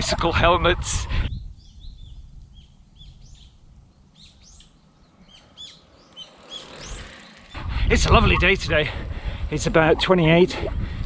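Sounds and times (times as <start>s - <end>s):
wind on microphone: 0.0s - 4.6s, 6.5s - 11.0s
small birds chirping: 1.4s - 8.7s.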